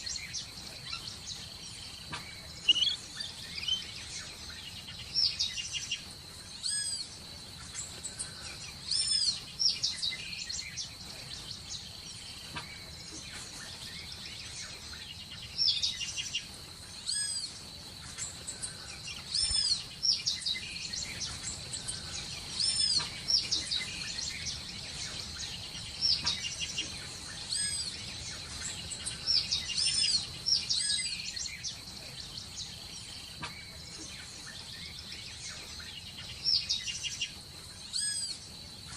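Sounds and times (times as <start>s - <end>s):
birds chirping: 0.0s - 38.9s
faint background hiss: 0.0s - 38.9s
steady high-pitched tone: 2.6s - 3.9s.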